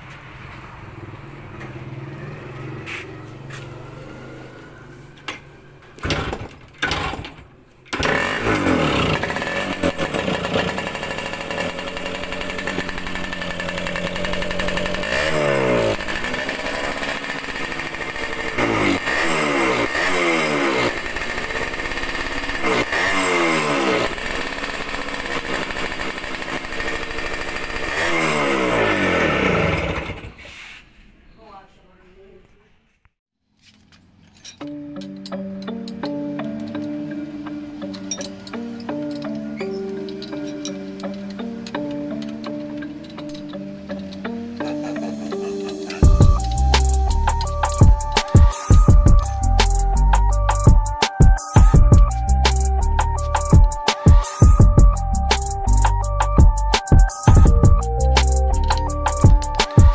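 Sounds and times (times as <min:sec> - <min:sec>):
two-stroke motorcycle engine revving: 0:08.0 - 0:30.4, 0:41.4 - 0:59.9.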